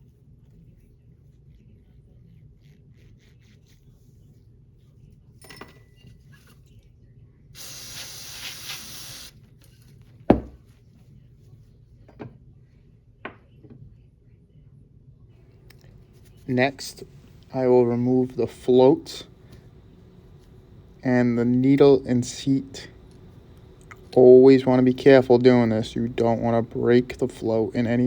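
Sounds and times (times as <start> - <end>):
aerosol spray burst: 7.6 - 9.4
tools knocking on bench: 10.3 - 10.6.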